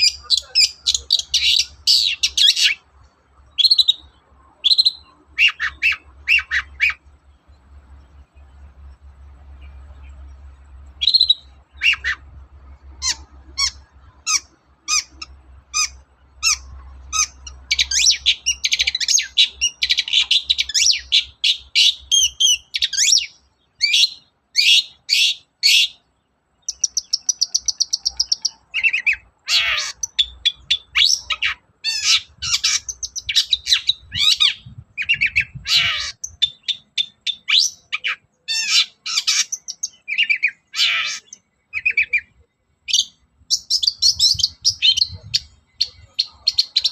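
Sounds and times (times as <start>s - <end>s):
shrike singing: 0.0s - 8.7s.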